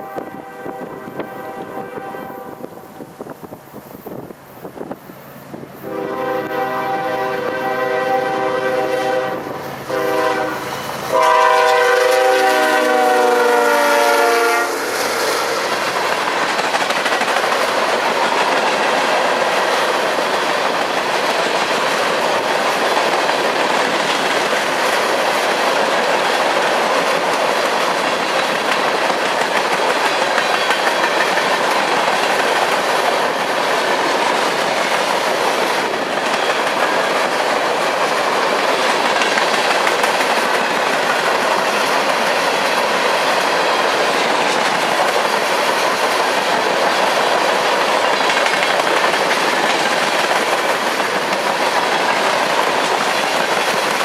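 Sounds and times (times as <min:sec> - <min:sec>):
locomotive horn blasts: 0:00.0 - 0:02.9, 0:05.8 - 0:14.9
train cars rumbling and clacking: 0:00.0 - 0:54.0.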